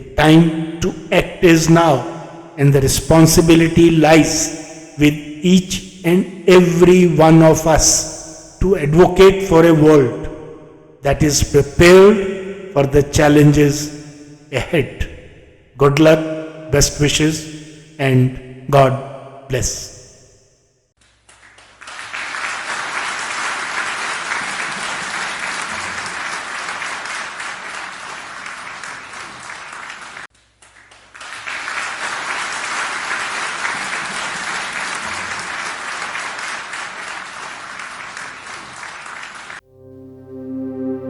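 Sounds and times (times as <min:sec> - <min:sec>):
audience applause: 0:21.3 - 0:39.6.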